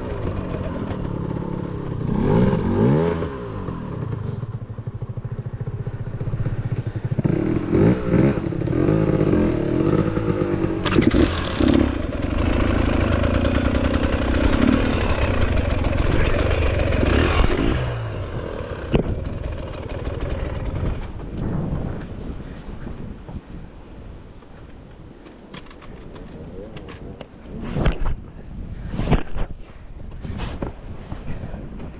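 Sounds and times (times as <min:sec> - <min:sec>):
dirt bike engine revving: 0:00.0 - 0:04.4, 0:07.2 - 0:21.2.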